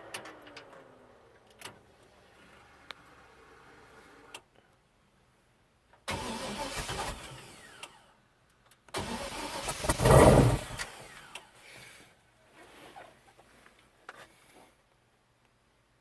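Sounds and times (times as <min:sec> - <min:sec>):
engine cranking: 0:06.1 - 0:08.0, 0:09.0 - 0:11.4.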